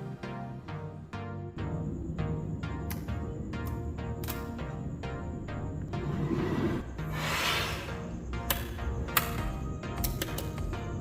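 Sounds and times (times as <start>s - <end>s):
background music: 0.0s - 11.0s
hissing swell: 5.9s - 8.2s.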